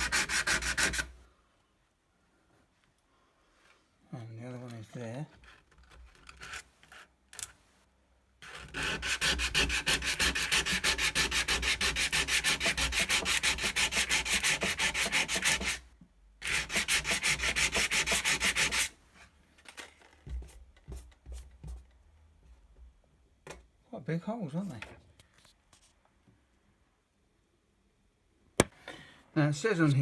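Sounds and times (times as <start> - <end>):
sandpaper rubbing on metal: 0.0 - 1.1, 8.4 - 15.8, 16.5 - 18.9.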